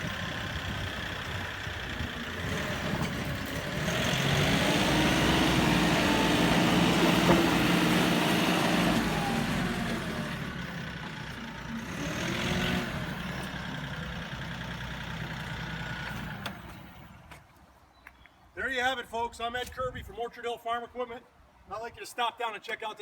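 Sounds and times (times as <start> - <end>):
tractor diesel engine running: 0.0 - 17.4.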